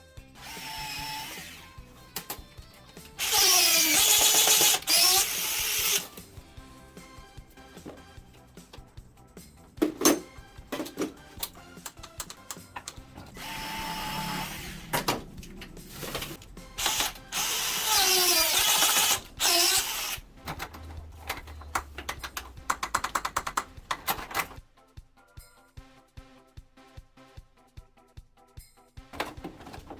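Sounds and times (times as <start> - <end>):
power drill running: 0.4 - 1.7, 3.2 - 6.1, 13.4 - 15.2, 16.8 - 20.2.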